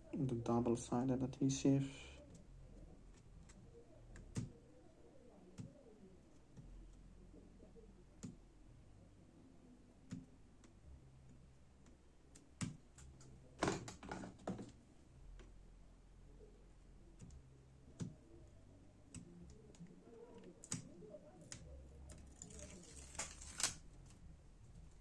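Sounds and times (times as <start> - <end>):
adhesive tape peeling: 22.2 - 24.1.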